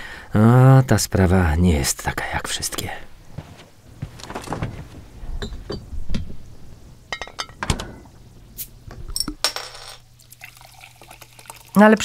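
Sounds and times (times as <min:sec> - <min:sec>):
glass bottles clinking: 0:07.1 - 0:07.6
glass ringing: 0:07.1 - 0:07.6.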